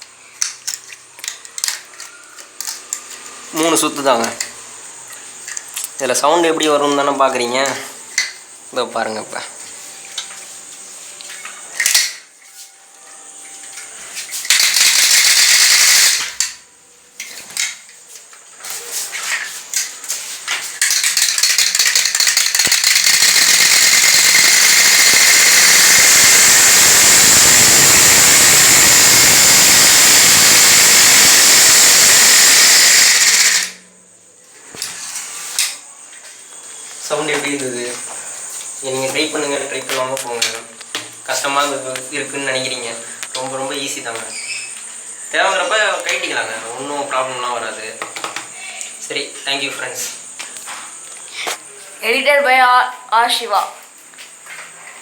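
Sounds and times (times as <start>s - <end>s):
bottle rattling against bicycle spokes: 20.5s - 25.4s.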